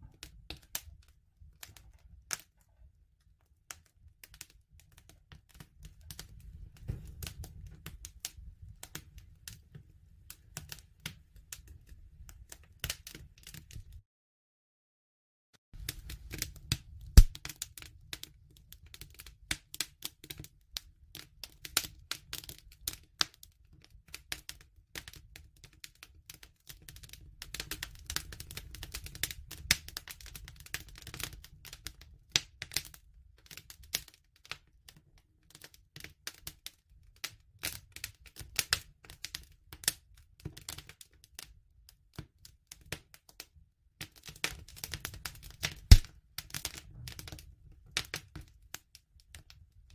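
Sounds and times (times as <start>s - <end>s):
wood fire crackling: 0.0s - 14.0s, 15.8s - 34.6s, 37.6s - 41.1s, 44.0s - 49.7s.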